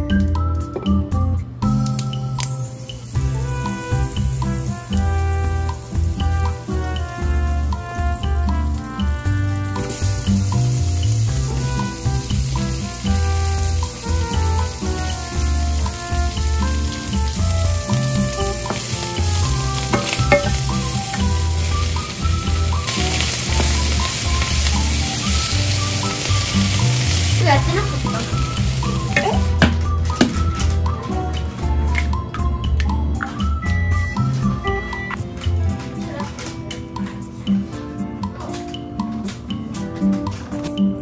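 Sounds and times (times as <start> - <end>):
background music with bass: 0.0 - 41.0
food sizzling in frying pan: 2.3 - 29.6.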